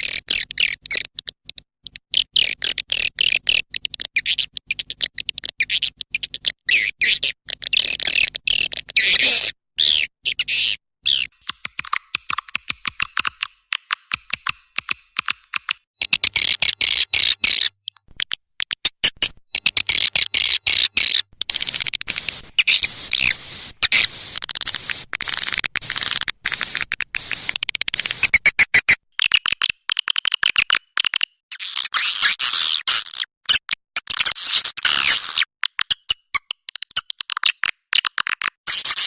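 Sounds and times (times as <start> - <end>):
swiftlet twittering chirps: 21.4 - 28.4.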